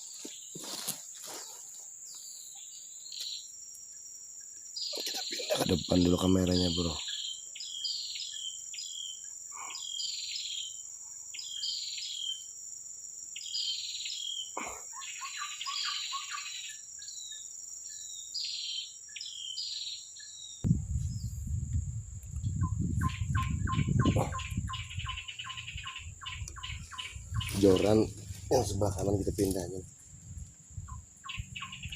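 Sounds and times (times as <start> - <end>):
birds chirping: 0.0 - 12.5, 13.4 - 21.5, 22.4 - 31.9
low rumbling noise: 20.7 - 25.0.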